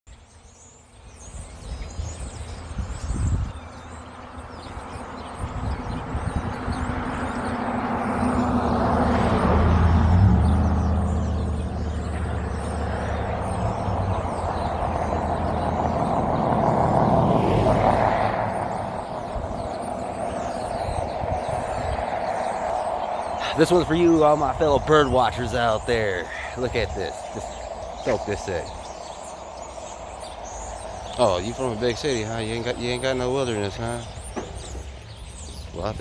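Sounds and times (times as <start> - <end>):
faint bird chirps: 17.8 - 36.0.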